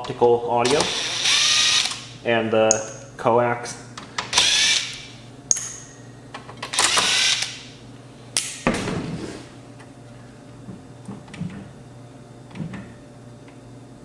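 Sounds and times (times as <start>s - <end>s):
power screwdriver running: 0.7s - 2.0s, 4.3s - 5.0s, 6.7s - 7.6s.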